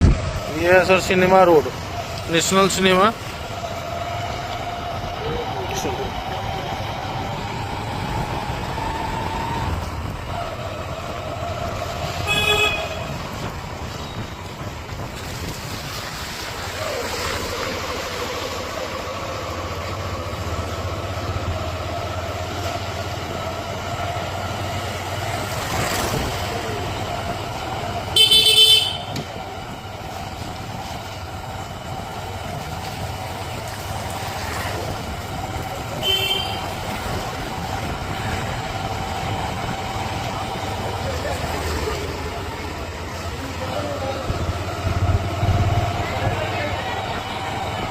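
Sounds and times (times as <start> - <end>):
vehicle engine running: 0.0 - 47.9
vehicle horn tooting: 12.2 - 13.4, 28.1 - 29.3, 36.0 - 36.8.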